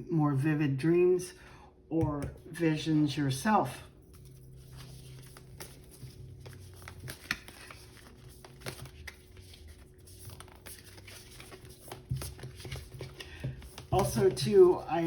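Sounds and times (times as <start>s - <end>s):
cards clicking and rustling: 4.0s - 15.0s.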